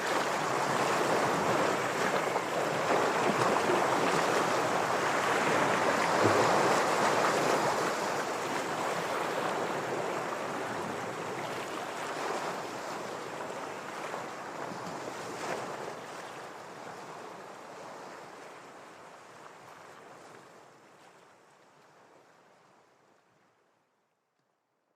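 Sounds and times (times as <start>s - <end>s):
ocean waves washing against rocks: 0.0s - 14.5s.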